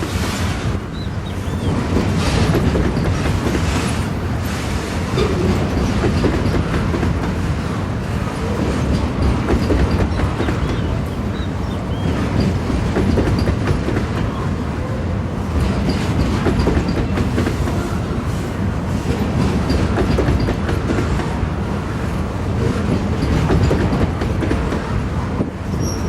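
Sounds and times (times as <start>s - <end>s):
freight train rolling past: 0.0s - 26.0s
wheels clicking over rail joints: 5.1s - 7.4s, 8.4s - 11.0s, 12.0s - 14.3s, 15.6s - 17.8s, 19.1s - 21.3s, 22.6s - 24.9s
faint high squeaks: 25.7s - 26.0s.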